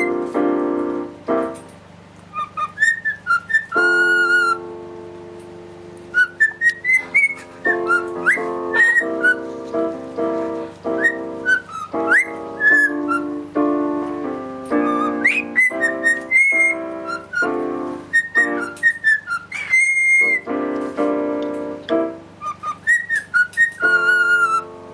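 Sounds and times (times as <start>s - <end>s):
songbird whistling and chirping: 0.0s - 0.3s, 2.3s - 4.7s, 6.1s - 9.8s, 10.9s - 13.7s, 14.6s - 20.6s, 21.9s - 24.7s
music with sustained notes: 0.0s - 24.9s.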